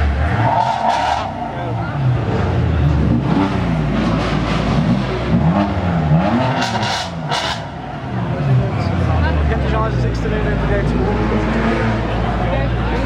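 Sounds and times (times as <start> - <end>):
sports car engine revving: 0.0 - 13.0.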